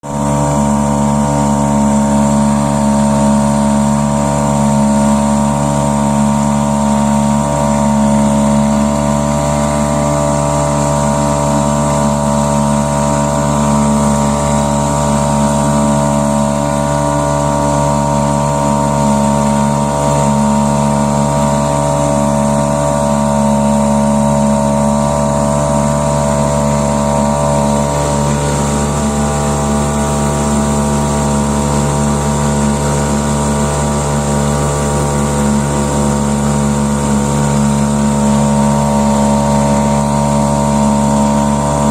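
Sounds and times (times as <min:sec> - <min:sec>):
outboard motor running: 0:00.0 - 0:41.9.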